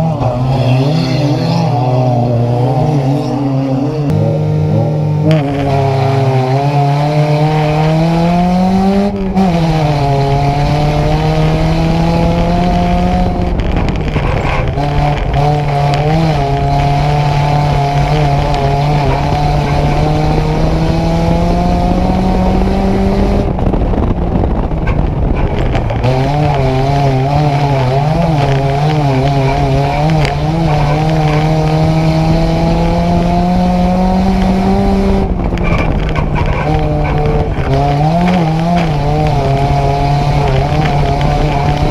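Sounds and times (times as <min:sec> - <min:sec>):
race car engine revving: 0:00.0 - 0:41.9.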